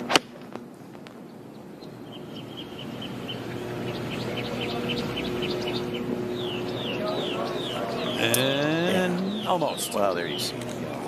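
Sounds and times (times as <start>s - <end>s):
steady outdoor background noise: 0.0s - 11.0s
small birds chirping: 1.1s - 11.0s.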